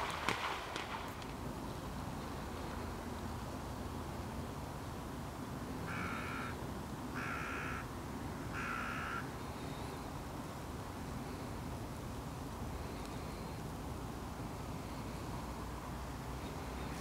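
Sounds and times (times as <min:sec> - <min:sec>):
low background noise: 0:00.0 - 0:17.0
bird calling: 0:05.9 - 0:06.6, 0:07.2 - 0:07.8, 0:08.6 - 0:10.2.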